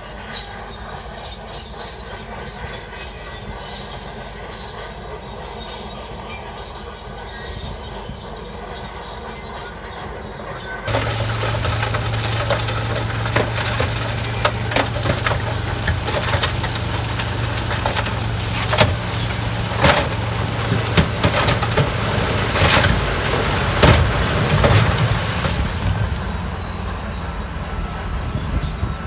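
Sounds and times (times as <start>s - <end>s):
diesel machine engine humming: 10.9s - 29.0s.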